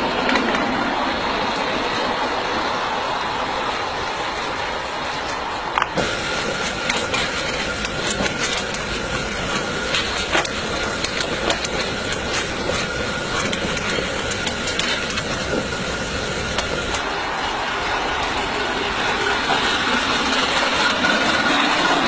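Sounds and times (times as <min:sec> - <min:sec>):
sharp clicks on track: 0:00.0 - 0:02.2, 0:04.2 - 0:17.1
steam locomotive rushing: 0:00.0 - 0:22.0.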